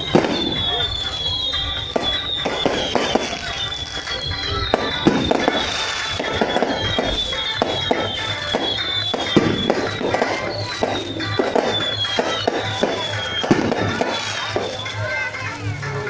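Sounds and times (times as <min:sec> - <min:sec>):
fireworks bangs and crackles: 0:00.0 - 0:16.0
music playing: 0:00.0 - 0:16.0.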